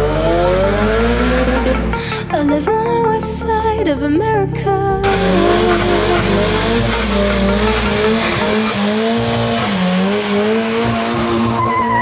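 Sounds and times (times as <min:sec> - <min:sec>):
car engine revving: 0:00.0 - 0:02.6, 0:05.0 - 0:12.0
high wavering squeal: 0:05.0 - 0:12.0
car tires squealing: 0:05.1 - 0:12.0.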